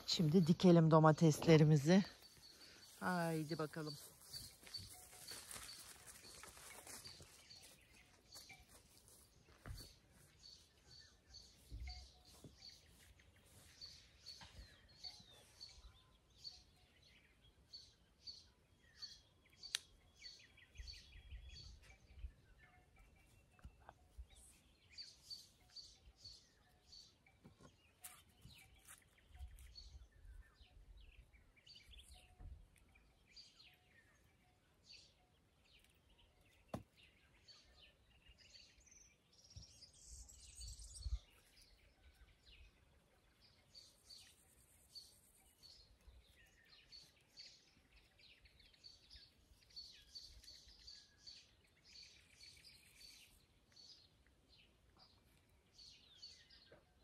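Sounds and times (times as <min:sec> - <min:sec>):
faint birdsong: 0:00.0 - 0:57.0
soft low thumps and rustles: 0:04.0 - 0:10.6.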